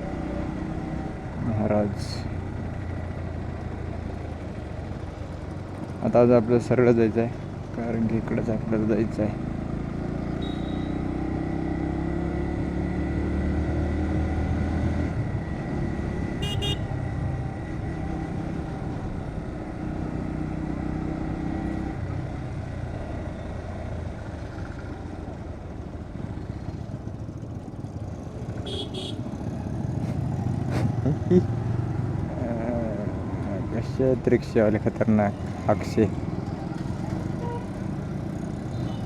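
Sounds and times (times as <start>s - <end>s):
motorcycle engine running: 0.0s - 14.3s, 15.1s - 39.0s
short horn beeps: 10.4s - 11.1s, 16.4s - 16.9s, 28.7s - 29.2s.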